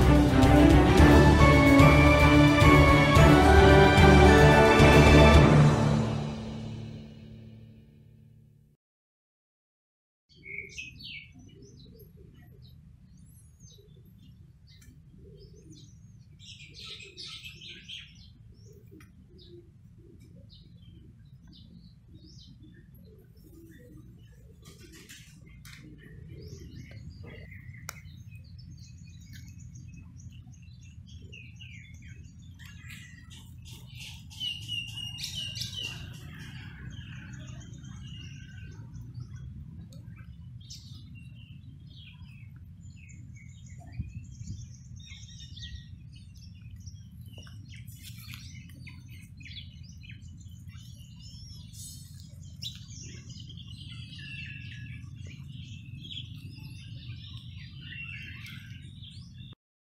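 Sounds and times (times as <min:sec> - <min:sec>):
low rumble: 0:00.0 - 0:07.8
birds chirping and singing: 0:10.3 - 0:59.6.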